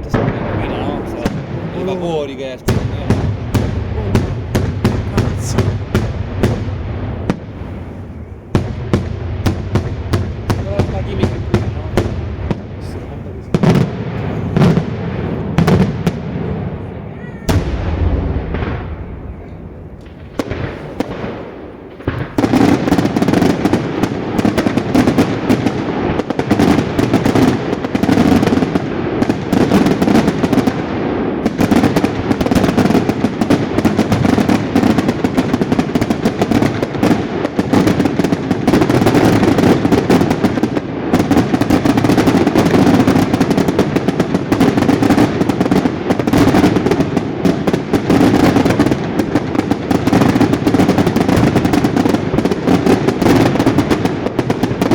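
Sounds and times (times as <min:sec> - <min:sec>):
fireworks rapid bangs and crackling: 0:00.0 - 0:54.9.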